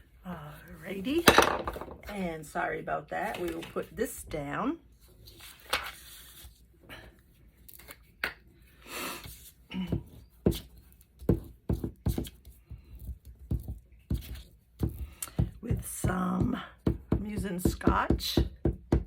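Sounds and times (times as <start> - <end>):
paper rustle: 5.0 - 6.6.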